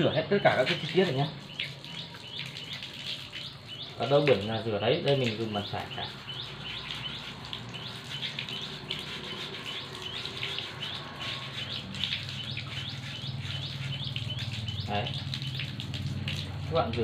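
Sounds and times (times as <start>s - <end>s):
birds chirping: 0.0s - 17.0s
water splashing on concrete floor: 0.0s - 17.0s.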